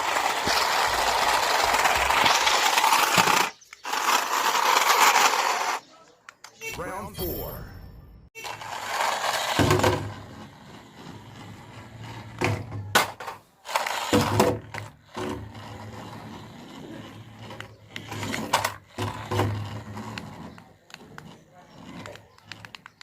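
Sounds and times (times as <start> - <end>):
toy car motors whirring: 0.0 - 5.9, 8.4 - 23.0
plastic bodies colliding: 12.3 - 13.4.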